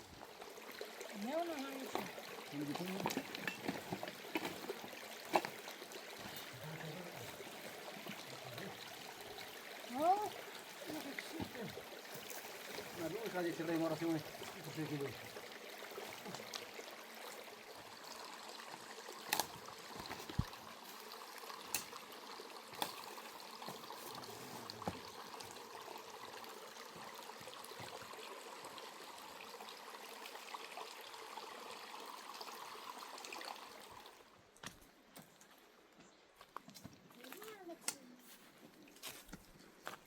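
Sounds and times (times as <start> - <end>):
running water trickling: 0.0 - 40.0.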